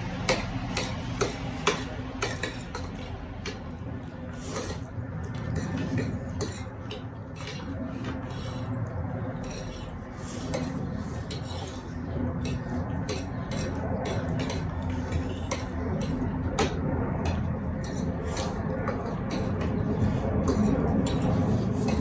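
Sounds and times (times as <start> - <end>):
steady low hum: 0.0 - 22.0
cutlery clinking on dishes: 0.2 - 3.7, 5.4 - 8.6, 12.4 - 22.0.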